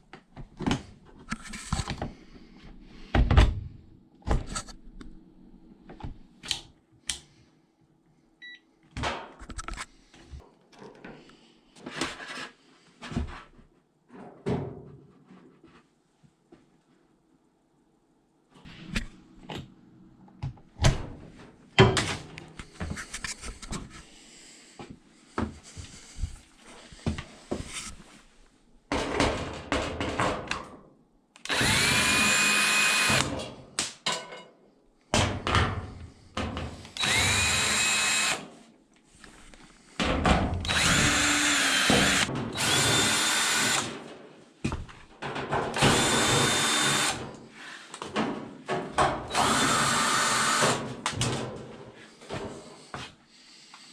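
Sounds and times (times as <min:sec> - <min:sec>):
clicks and knocks of tools: 0:09.0 - 0:11.4
power drill spinning up: 0:31.5 - 0:33.3, 0:37.0 - 0:38.4, 0:40.6 - 0:43.9, 0:45.8 - 0:47.2, 0:49.3 - 0:50.8.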